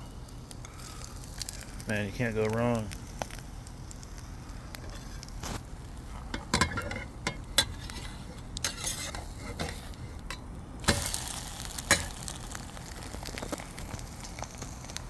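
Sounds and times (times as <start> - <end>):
food sizzling: 0.0 - 10.2, 10.8 - 15.0
utensils scraping cookware: 6.4 - 10.3.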